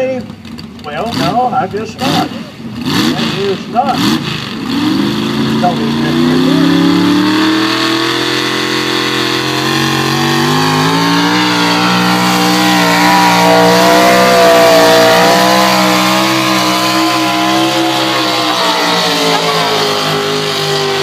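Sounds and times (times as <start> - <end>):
truck engine at high revs: 0.0 - 21.0.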